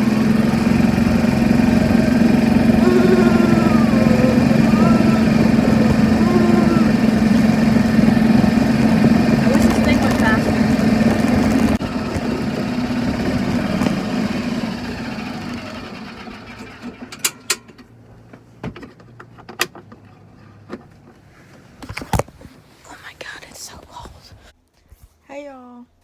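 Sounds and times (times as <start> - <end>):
golf cart humming: 0.0 - 17.3.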